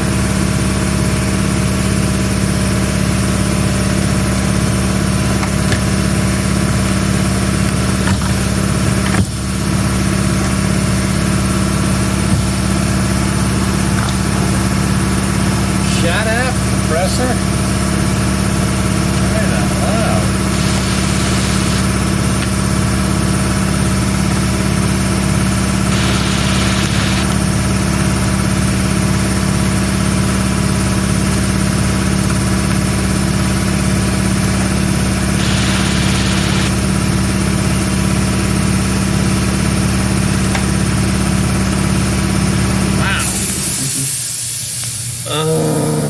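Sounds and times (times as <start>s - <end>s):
air compressor running: 0.0s - 46.0s
air hissing bursts: 19.9s - 22.7s, 25.9s - 27.5s, 35.3s - 36.8s, 43.1s - 45.3s.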